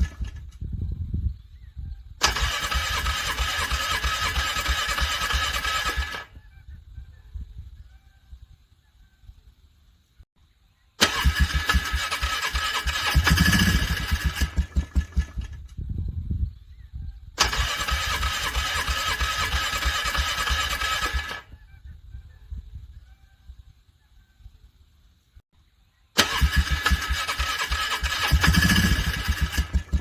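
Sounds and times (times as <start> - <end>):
electric starter cranking engine: 2.2 - 6.3, 11.0 - 15.7, 17.4 - 21.5, 26.2 - 30.0
engine chugging unevenly: 11.0 - 15.8, 26.2 - 30.0.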